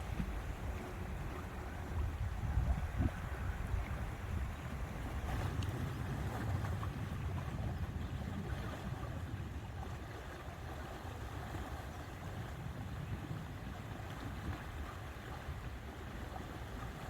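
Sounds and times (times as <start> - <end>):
faint lake water lapping: 0.0 - 17.0
wind buffeting microphone: 0.0 - 17.0.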